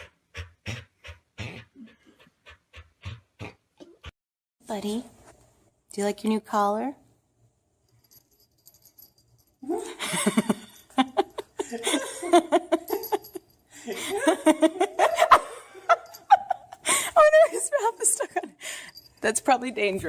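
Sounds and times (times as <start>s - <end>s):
person laughing: 9.7s - 18.5s.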